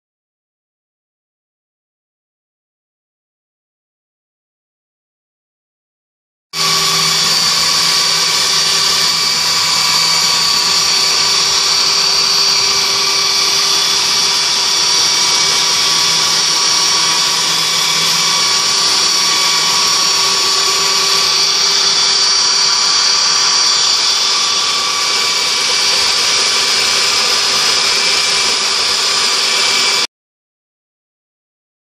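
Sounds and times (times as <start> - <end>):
electric sander running: 6.6 - 30.1.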